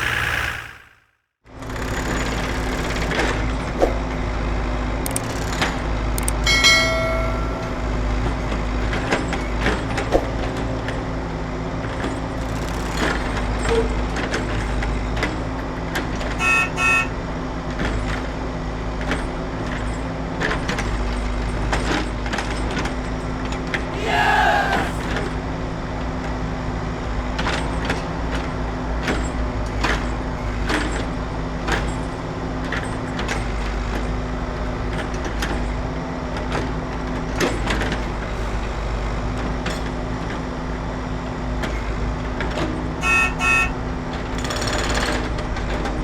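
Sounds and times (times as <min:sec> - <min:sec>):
horn toots: 0:00.0 - 0:01.0, 0:16.4 - 0:17.2, 0:43.0 - 0:43.8.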